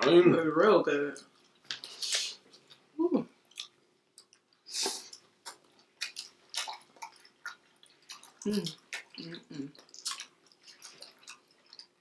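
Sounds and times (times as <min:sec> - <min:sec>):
chewing and mouth smacks: 0:03.5 - 0:12.0.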